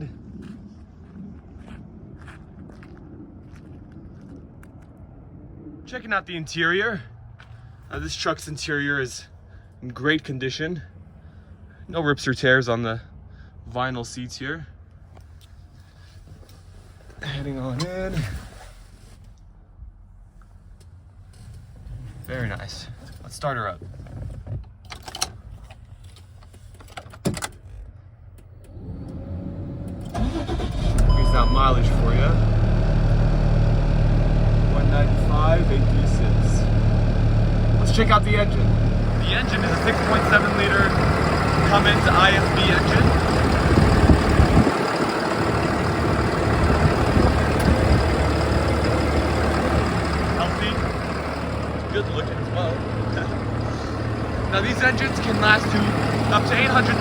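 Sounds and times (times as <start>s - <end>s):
low rumble: 0.0s - 8.3s, 31.0s - 57.0s
diesel truck engine idling: 28.8s - 57.0s.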